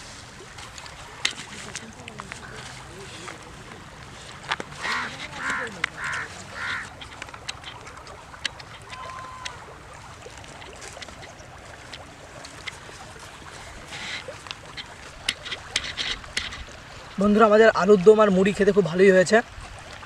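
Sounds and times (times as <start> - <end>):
faint water noise: 0.0 - 20.0
ducks quacking: 2.3 - 3.8, 4.8 - 7.8.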